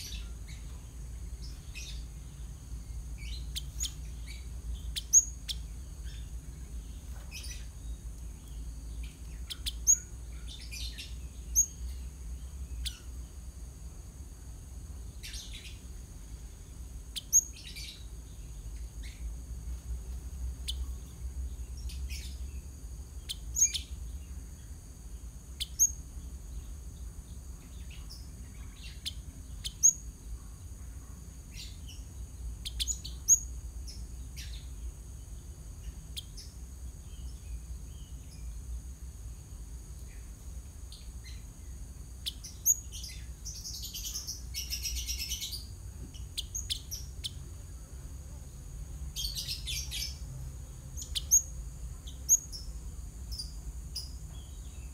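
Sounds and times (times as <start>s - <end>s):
sparrow chirping: 0.0s - 13.3s, 15.1s - 15.9s, 17.0s - 19.3s, 20.6s - 24.4s, 25.6s - 27.0s, 27.6s - 30.2s, 31.5s - 34.8s, 35.8s - 38.8s, 42.2s - 47.5s, 49.1s - 54.9s
sparrow rapid chattering: 3.2s - 6.3s, 9.0s - 11.8s, 51.0s - 51.5s.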